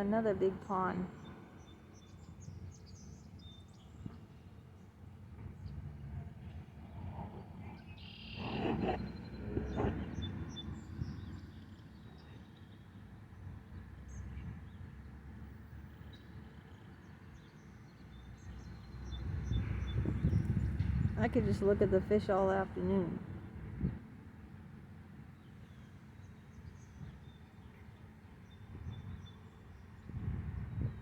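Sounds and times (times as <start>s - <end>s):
bird chirps: 7.8s - 12.8s.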